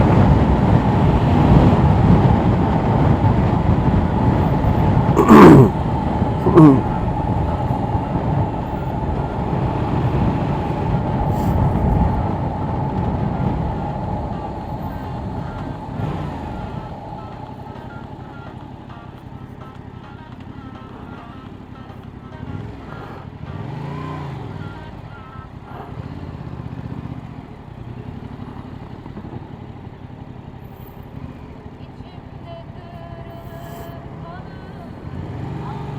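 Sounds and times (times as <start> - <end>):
wind noise: 0.0 - 17.4
motorcycle engine running: 0.0 - 35.9
wind and road rumble: 0.0 - 35.9.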